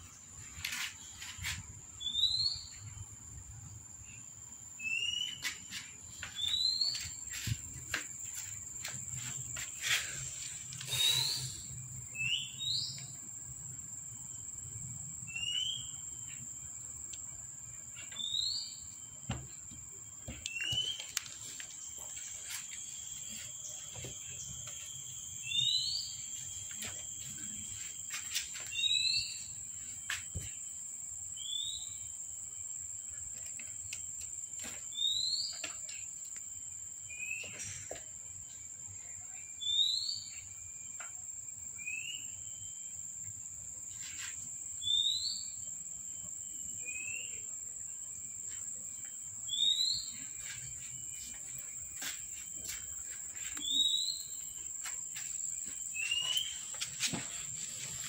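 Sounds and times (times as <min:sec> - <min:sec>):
high insect drone: 0:00.0 - 0:58.0
bird rising whistled call: 0:10.9 - 0:12.6.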